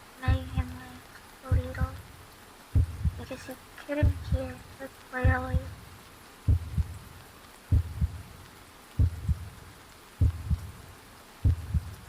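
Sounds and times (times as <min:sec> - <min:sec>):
slow heartbeat thumps: 0:00.3 - 0:00.8, 0:01.5 - 0:03.3, 0:04.0 - 0:04.5, 0:05.2 - 0:09.6, 0:10.2 - 0:10.8, 0:11.4 - 0:12.0.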